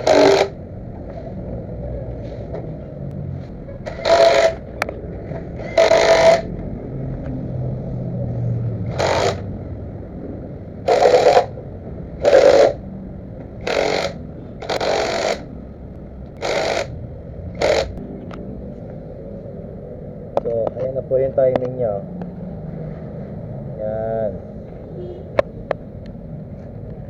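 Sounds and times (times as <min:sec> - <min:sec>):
power tool bursts: 0:00.0 - 0:00.6, 0:03.9 - 0:04.7, 0:05.6 - 0:06.5, 0:08.9 - 0:09.5, 0:10.8 - 0:11.6, 0:12.2 - 0:12.8, 0:13.6 - 0:15.5, 0:16.4 - 0:18.0
low hum: 0:00.0 - 0:23.8.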